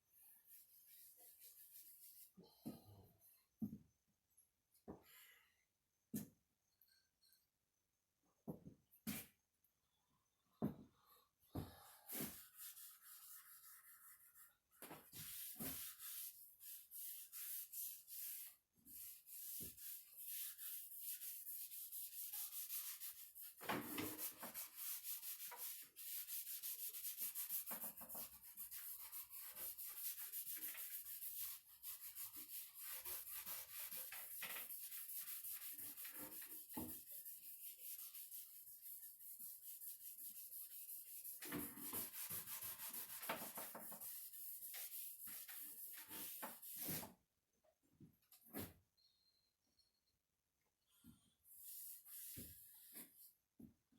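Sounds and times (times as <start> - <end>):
rubbing strokes on wood: 11.9 - 47.1.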